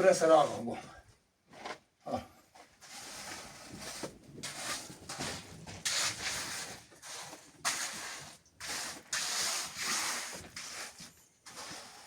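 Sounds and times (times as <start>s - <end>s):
hand tool scraping wet concrete: 2.7s - 12.0s.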